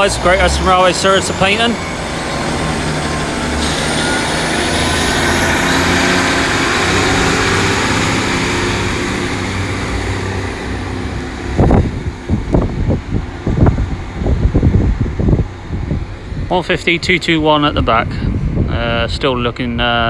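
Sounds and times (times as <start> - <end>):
high whine rising in pitch: 0.0 - 20.0
train diesel engines running: 0.0 - 20.0
wind buffeting microphone: 0.0 - 20.0.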